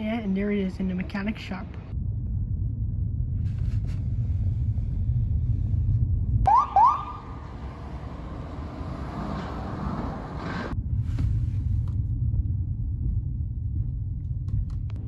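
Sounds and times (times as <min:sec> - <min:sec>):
diesel engine rumbling: 0:00.0 - 0:14.4
rising siren chirps: 0:06.5 - 0:10.7.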